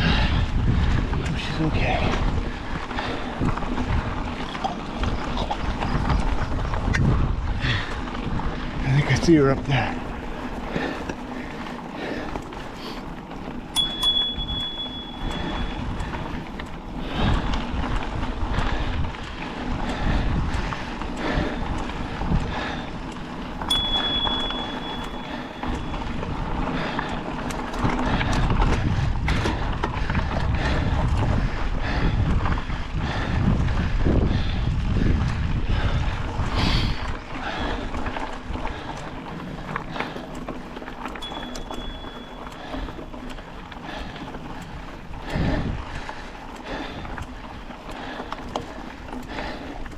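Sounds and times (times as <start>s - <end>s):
wind buffeting microphone: 0.0s - 49.9s
thin high tone: 13.8s - 15.8s, 23.7s - 26.0s.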